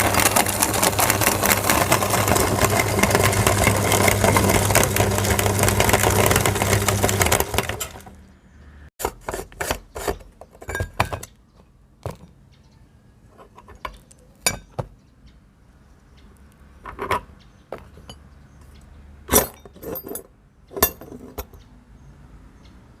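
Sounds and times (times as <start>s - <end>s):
hard objects clicking and clinking: 0.0s - 8.1s
meat grinder motor humming: 0.0s - 8.2s.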